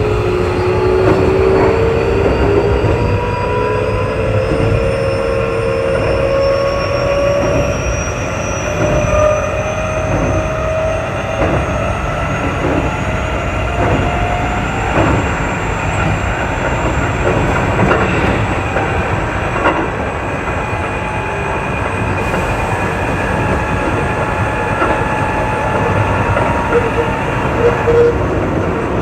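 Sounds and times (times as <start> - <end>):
train wheels rumbling on rail: 0.0 - 29.0
rail-joint clicks: 3.9 - 29.0.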